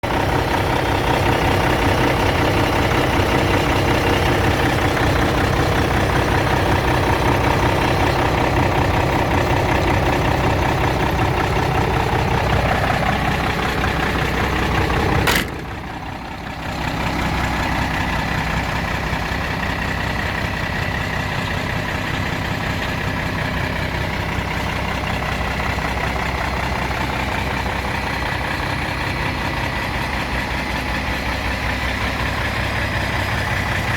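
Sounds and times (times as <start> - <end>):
truck diesel engine idling: 0.0 - 33.9
sharp click: 15.3 - 15.8.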